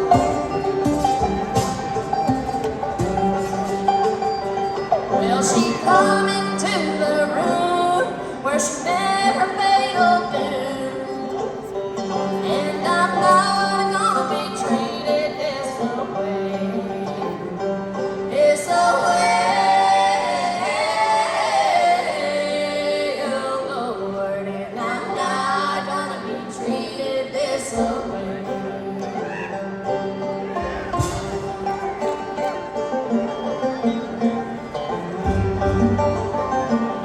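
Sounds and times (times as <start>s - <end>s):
live band music: 0.0s - 23.1s, 27.8s - 37.0s
woman singing: 5.1s - 29.8s.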